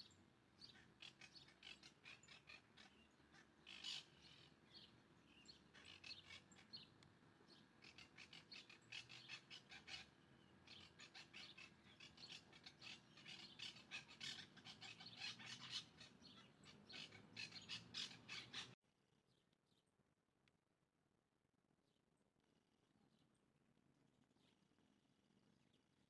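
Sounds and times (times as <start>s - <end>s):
small birds chirping: 0.0s - 18.8s.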